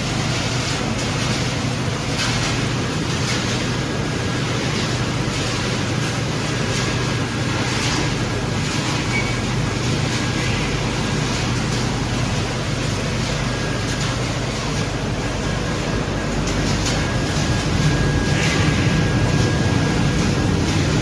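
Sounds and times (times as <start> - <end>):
recycling machine noise: 0.0 - 21.0.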